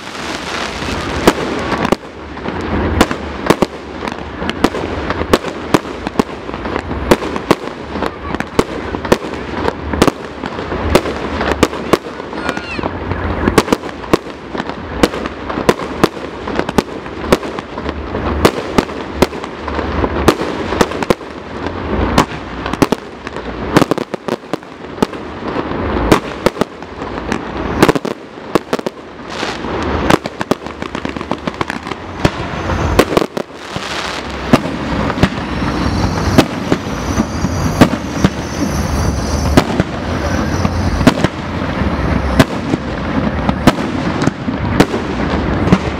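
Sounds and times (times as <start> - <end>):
fireworks bangs and pops: 0.0 - 45.9
fireworks crackling: 0.0 - 45.9.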